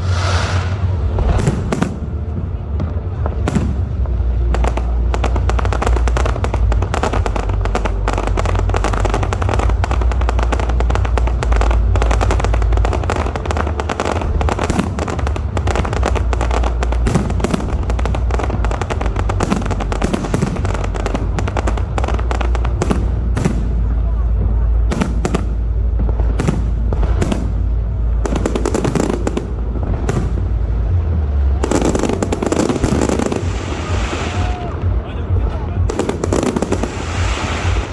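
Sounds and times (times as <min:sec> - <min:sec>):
fireworks cracking and popping: 0:00.0 - 0:37.9
low rumble: 0:00.0 - 0:37.9.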